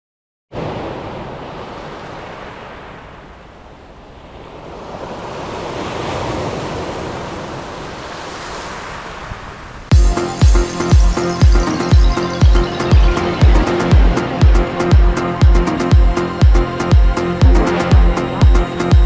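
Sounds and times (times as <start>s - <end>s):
waves washing on shore: 0.5s - 9.9s.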